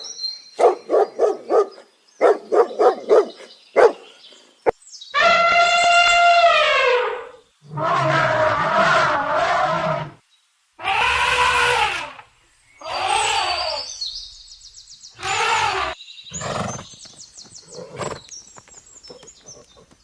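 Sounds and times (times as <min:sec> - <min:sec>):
large animal calling: 0:05.2 - 0:10.2, 0:10.8 - 0:14.0, 0:15.2 - 0:16.6
faint bird chirps: 0:12.4 - 0:20.0.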